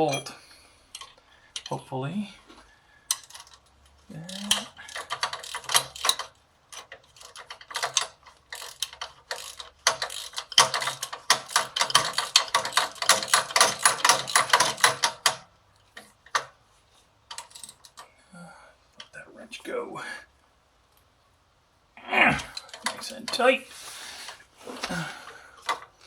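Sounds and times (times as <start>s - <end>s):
ratchet wrench clicking: 3.1s - 3.7s, 4.3s - 15.4s, 17.3s - 18.0s.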